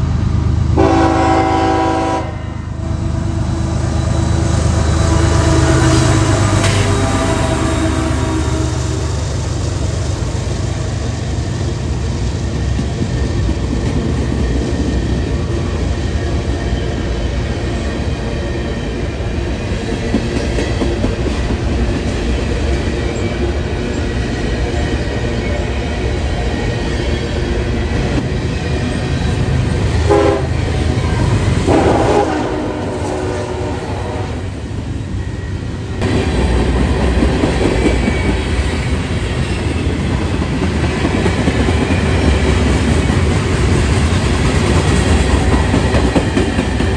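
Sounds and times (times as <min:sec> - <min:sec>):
train wheels rumbling on rails: 0:00.0 - 0:46.9
train horn: 0:00.8 - 0:02.9, 0:05.0 - 0:09.2, 0:30.0 - 0:34.6.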